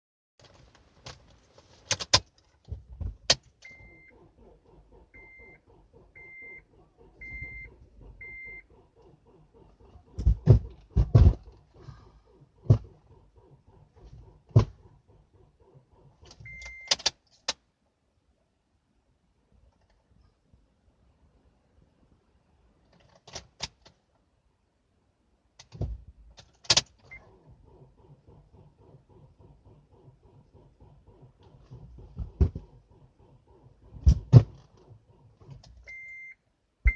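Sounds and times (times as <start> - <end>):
car warning chime beeping: 3.6 - 10.2, 15.6 - 17.0, 35.9 - 36.9
heavy thumps: 10.2 - 12.0
ignition switch clicks: 15.6 - 17.6.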